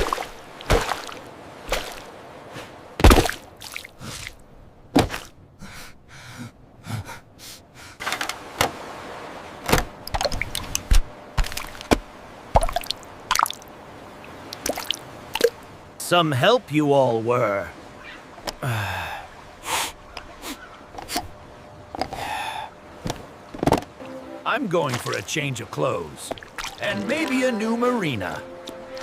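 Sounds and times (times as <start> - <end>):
water pouring and dripping: 10.0 - 15.6
gasping breaths: 22.1 - 22.7.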